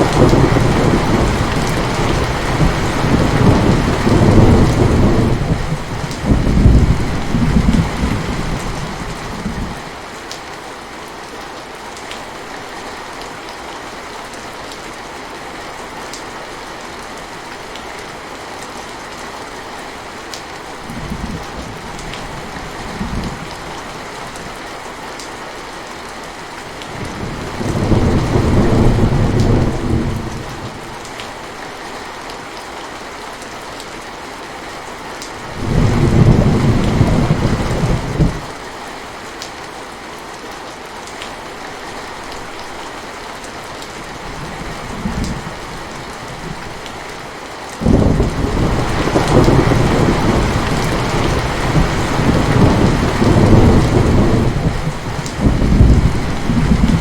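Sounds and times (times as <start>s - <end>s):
rolling thunder: 0.0s - 9.8s, 27.0s - 30.7s, 35.5s - 38.5s, 47.8s - 57.0s
steady rain: 0.0s - 57.0s.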